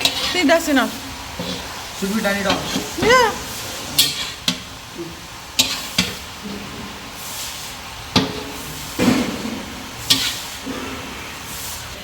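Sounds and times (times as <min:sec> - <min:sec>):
frying hiss: 0:00.0 - 0:12.0
cookware knocking and clattering: 0:08.1 - 0:09.8.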